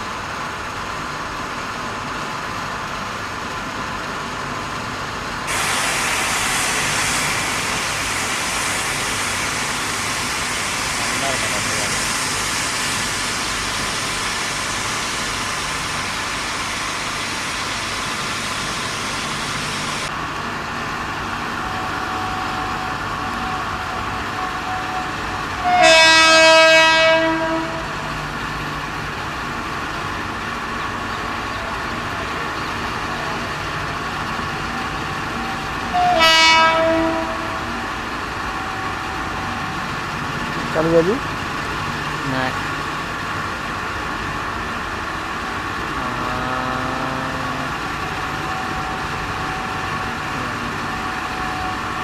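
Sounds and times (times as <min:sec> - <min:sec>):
high hiss: 0:05.5 - 0:20.1
train horn blast: 0:21.7 - 0:28.1, 0:35.8 - 0:37.8.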